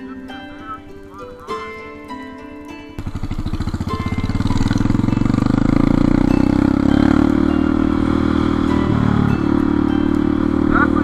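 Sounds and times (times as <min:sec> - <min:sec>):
motorcycle engine pulling away: 0:03.0 - 0:11.0.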